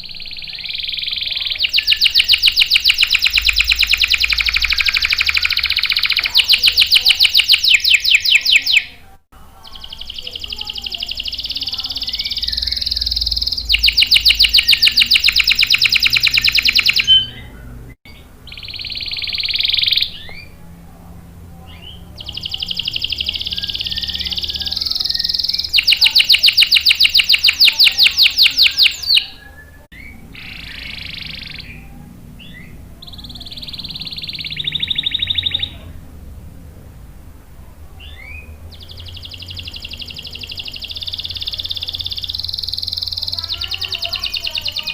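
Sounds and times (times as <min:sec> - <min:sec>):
canary singing: 0:00.0 - 0:36.6, 0:37.6 - 0:44.9.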